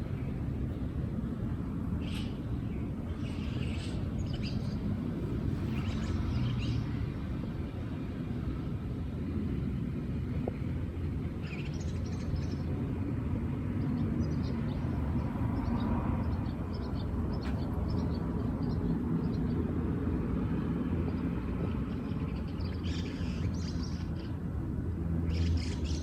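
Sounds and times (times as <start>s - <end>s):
steady low rumble: 0.0s - 26.0s
small birds chirping: 1.9s - 7.8s, 10.5s - 24.6s, 25.2s - 26.0s.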